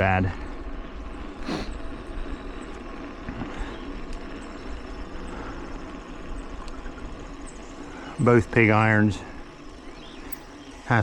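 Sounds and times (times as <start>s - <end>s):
bike tyres and drivetrain rumble: 0.0s - 11.0s
faint clicks: 2.6s - 5.8s, 6.4s - 7.5s.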